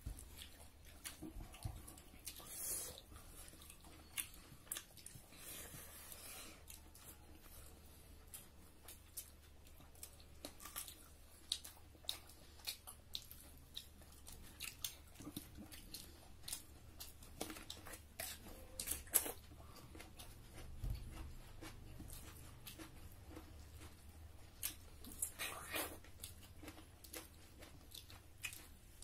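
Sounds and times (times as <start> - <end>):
people chewing and crunching food: 0.0 - 29.0.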